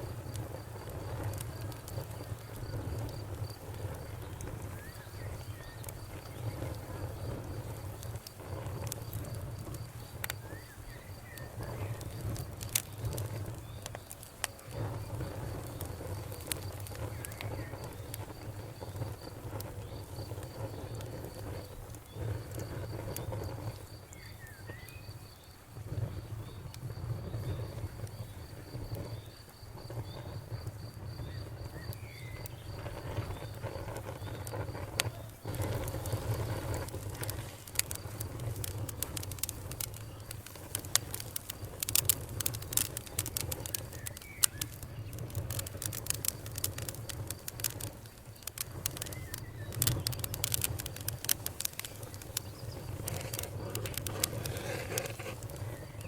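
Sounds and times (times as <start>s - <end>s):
campfire crackling and popping: 0.0s - 56.0s
pulsed insect chirp: 26.4s - 56.0s.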